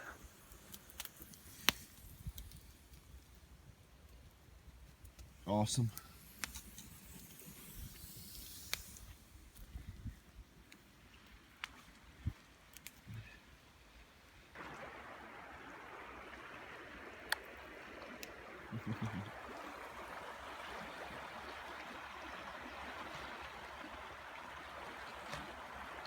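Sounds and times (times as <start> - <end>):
river water rushing: 14.6 - 26.0.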